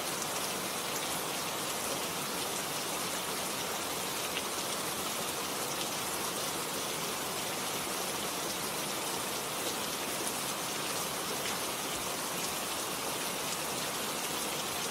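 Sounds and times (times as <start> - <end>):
steady rain: 0.0 - 14.9.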